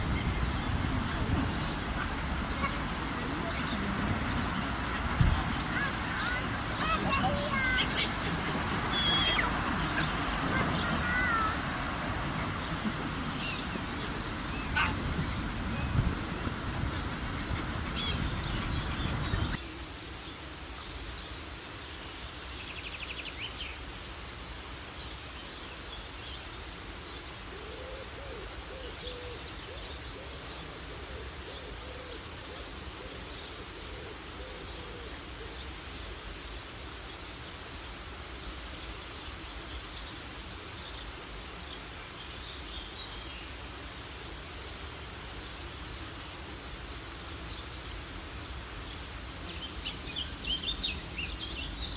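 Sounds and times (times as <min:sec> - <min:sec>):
low hooting calls: 0:00.8 - 0:19.6
bird chirps: 0:01.5 - 0:16.2.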